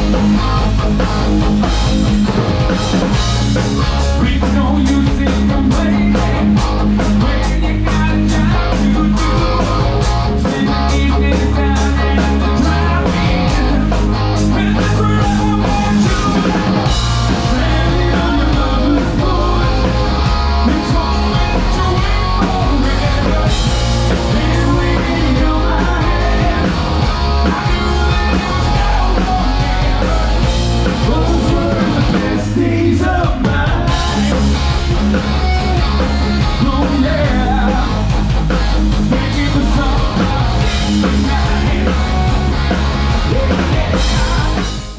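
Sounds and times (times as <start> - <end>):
rock band playing: 0.0 - 44.9
person singing: 4.1 - 34.6, 39.1 - 42.5.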